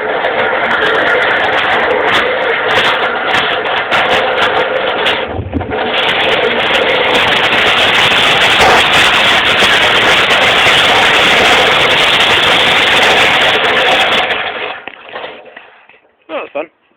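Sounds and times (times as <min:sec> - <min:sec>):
pallet truck rolling: 0:00.0 - 0:16.1
low bump: 0:05.1 - 0:11.9.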